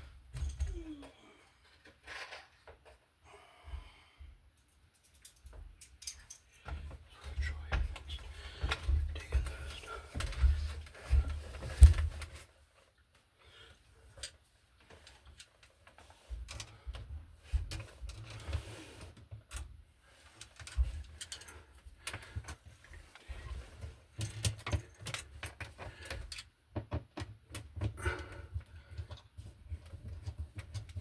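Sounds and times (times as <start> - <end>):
clicks and rattles of hand tools: 20.3 - 31.0.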